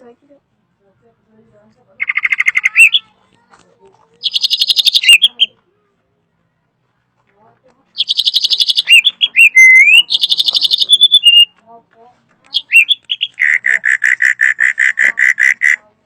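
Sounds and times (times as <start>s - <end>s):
drongo singing: 2.0s - 3.1s, 4.2s - 5.6s, 8.0s - 11.6s, 12.5s - 15.9s.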